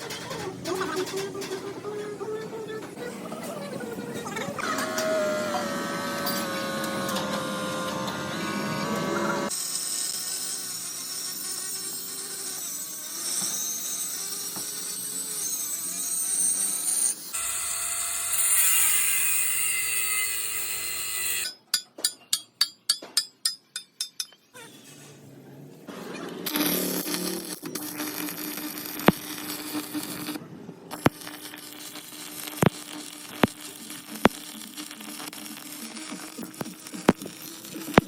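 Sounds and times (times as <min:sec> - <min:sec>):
power tool running: 0:04.6 - 0:21.5, 0:26.4 - 0:38.0.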